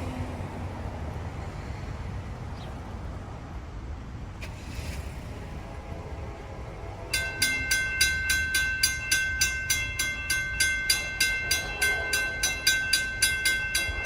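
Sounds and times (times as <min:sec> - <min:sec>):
railroad crossing bell ringing: 0:06.6 - 0:14.0.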